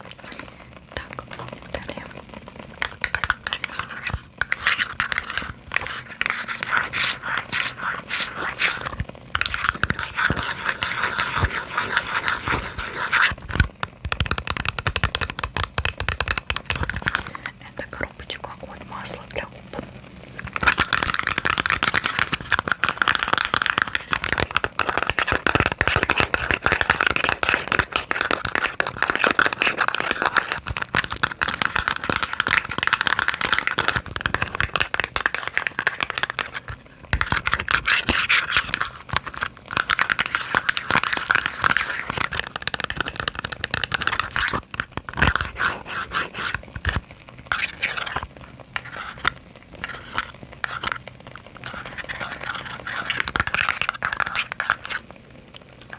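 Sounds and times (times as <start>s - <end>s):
tapping and scratching on boxes: 20.5s - 44.6s.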